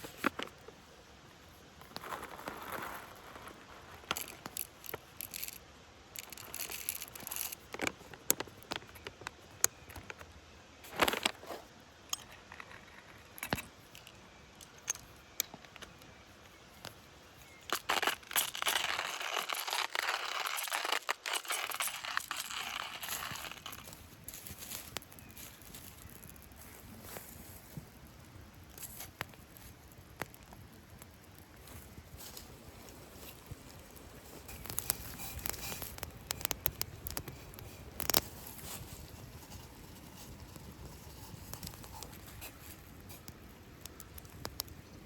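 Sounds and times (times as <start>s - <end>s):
crinkling rustle: 1.5s - 5.6s, 6.2s - 45.0s
dry twigs snapping and crackling: 16.8s - 45.0s.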